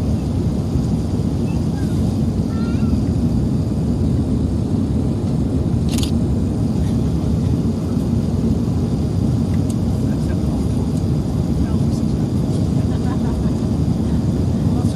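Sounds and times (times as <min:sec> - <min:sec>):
airliner cabin engine rumble: 0:00.0 - 0:14.9.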